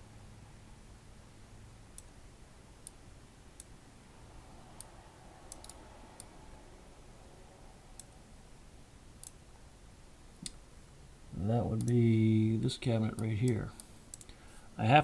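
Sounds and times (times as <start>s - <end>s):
computer mouse clicking: 4.8s - 6.3s, 9.2s - 9.4s, 11.8s - 12.0s, 13.2s - 14.4s.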